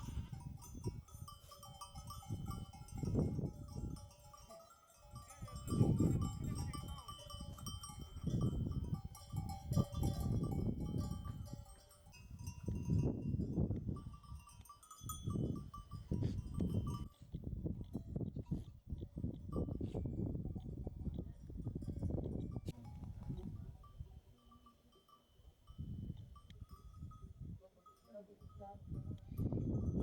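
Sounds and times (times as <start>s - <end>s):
bells ringing: 0.0s - 17.0s.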